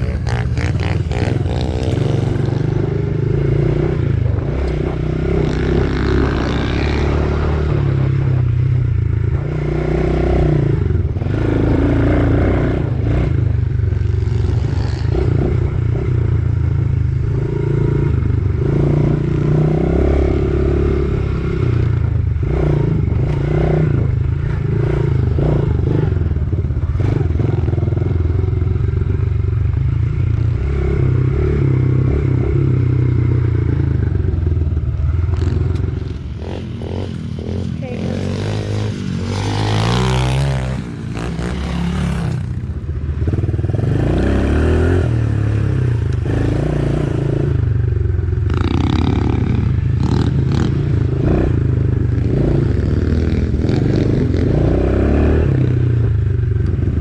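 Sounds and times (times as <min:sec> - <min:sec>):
pit bike engine revving: 0:00.0 - 0:08.3, 0:30.6 - 0:42.6.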